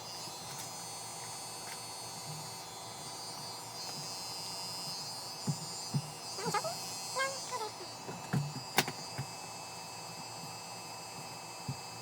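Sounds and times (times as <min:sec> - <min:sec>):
electric hair clippers humming: 0:00.0 - 0:12.0.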